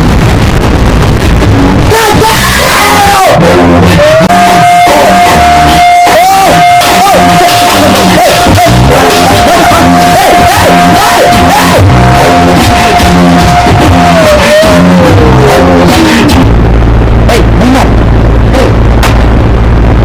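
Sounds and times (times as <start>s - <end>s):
high held tone sliding down: 0.0s - 20.0s
loud rock music with shouted singing: 1.5s - 16.5s.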